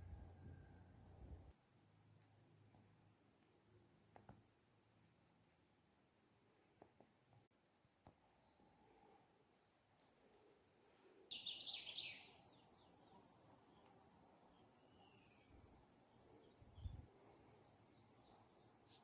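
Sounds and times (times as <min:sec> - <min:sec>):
steady high hiss: 0:11.2 - 0:19.0
faint bird chirps: 0:11.3 - 0:19.0.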